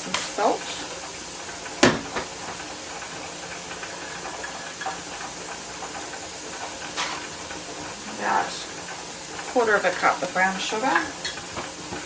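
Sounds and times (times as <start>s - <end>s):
steam hissing from canner: 0.0s - 12.0s
sharp knock: 1.8s - 2.3s.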